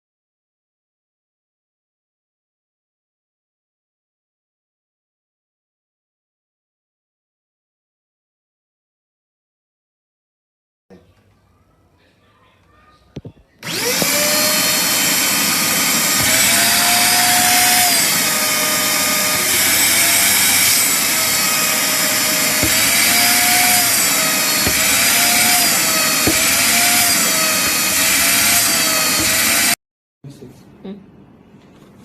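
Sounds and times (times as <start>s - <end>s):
vacuum cleaner motor whine: 13.6s - 29.8s.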